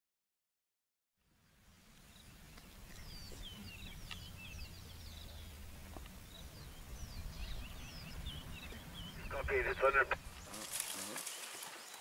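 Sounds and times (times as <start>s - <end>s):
birds chirping and whistling: 2.1s - 12.0s
steady low rumble: 2.4s - 10.5s.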